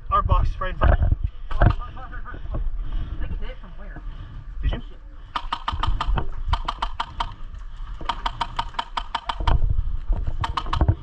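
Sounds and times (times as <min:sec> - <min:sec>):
airsoft rifle rapid shots: 0:05.4 - 0:07.4, 0:08.0 - 0:09.6, 0:10.4 - 0:11.0.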